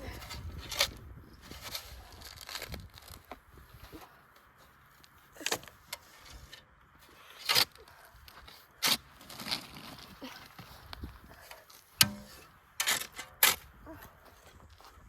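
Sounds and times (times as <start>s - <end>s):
shovel scraping dirt: 5.4s - 7.8s, 8.8s - 10.1s, 12.0s - 13.6s.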